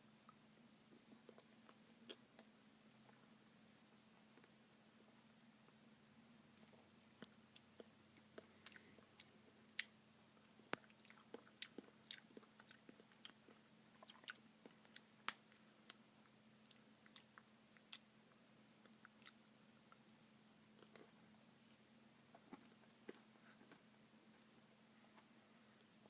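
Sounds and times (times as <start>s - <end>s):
person chewing ice cream: 6.5s - 18.1s, 18.8s - 20.0s.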